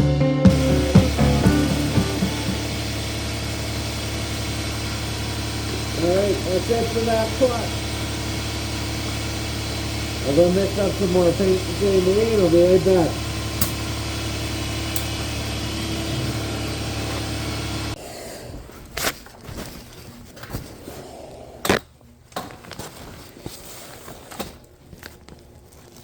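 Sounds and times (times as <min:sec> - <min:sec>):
workshop machine hum: 0:00.0 - 0:18.0
sharp clicks: 0:13.6 - 0:13.8.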